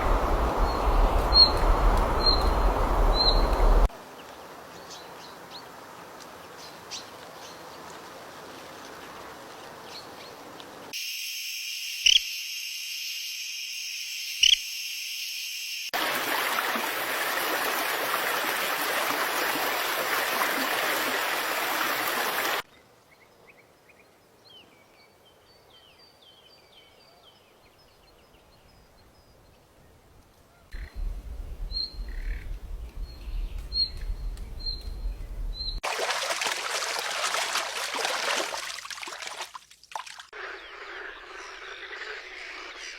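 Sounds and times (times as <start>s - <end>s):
small birds chirping: 0.0s - 3.9s, 30.7s - 35.8s
steady hissing noise: 0.0s - 4.8s
bird chirps: 0.6s - 3.8s, 30.8s - 35.8s.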